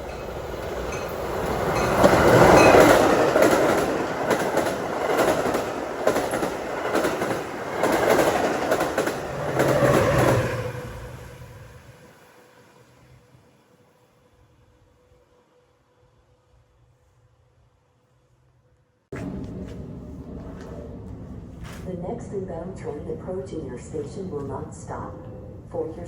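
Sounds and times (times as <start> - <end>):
train wheels clattering on rails: 0.0 - 10.9.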